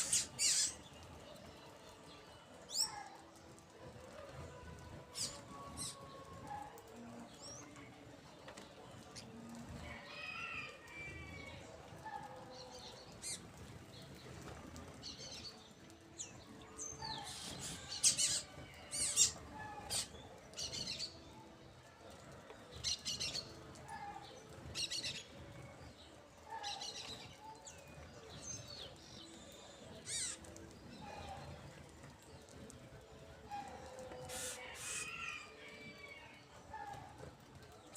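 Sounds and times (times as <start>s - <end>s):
birds chirping: 0.0s - 3.0s, 13.0s - 21.3s, 22.6s - 37.8s.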